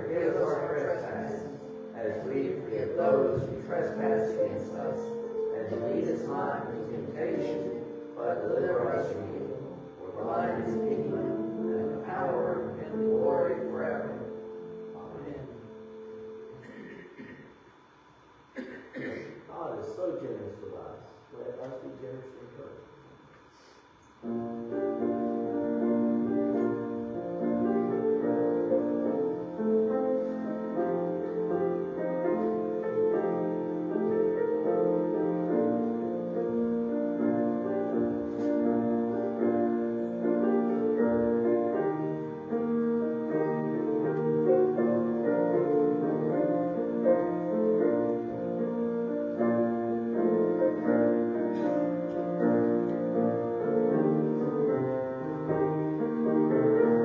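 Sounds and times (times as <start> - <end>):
slow piano music: 0.0 - 17.3, 24.1 - 57.0.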